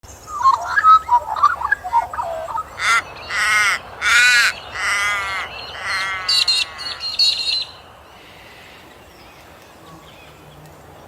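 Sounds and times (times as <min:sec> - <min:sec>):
bird calling: 0:00.1 - 0:10.7.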